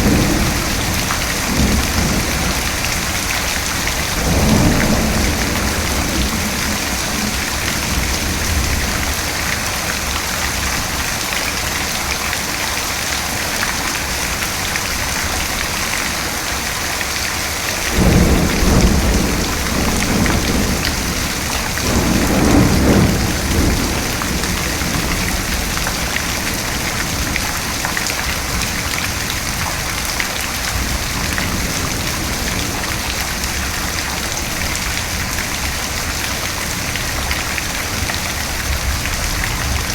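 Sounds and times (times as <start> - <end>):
thunder rumbling: 0.0 - 11.0, 17.8 - 29.8
heavy rain falling: 0.0 - 39.9.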